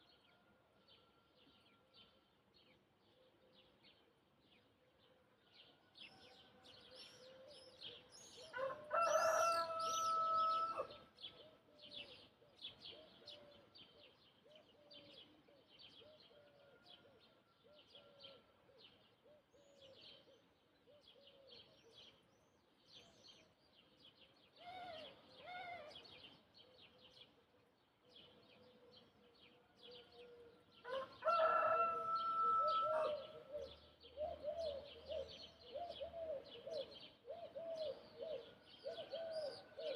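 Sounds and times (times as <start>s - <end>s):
rooster crowing: 8.5s - 11.0s, 30.8s - 33.4s.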